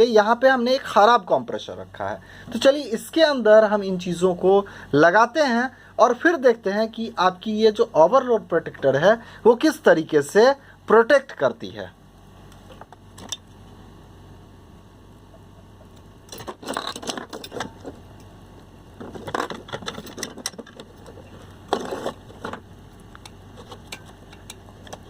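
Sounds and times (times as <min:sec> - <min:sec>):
low hum: 0:11.9 - 0:25.0
small parts clicking and rattling: 0:15.7 - 0:18.4, 0:19.0 - 0:25.0.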